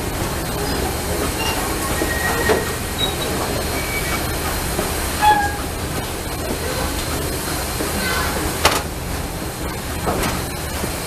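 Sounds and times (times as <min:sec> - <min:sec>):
wheels squealing on rails: 0:00.0 - 0:08.6
train rumbling on track: 0:00.0 - 0:11.0.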